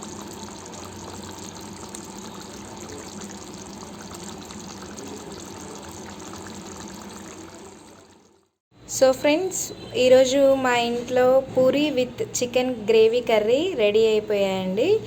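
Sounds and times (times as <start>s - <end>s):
curry simmering with bubbling pops: 0.0s - 8.6s.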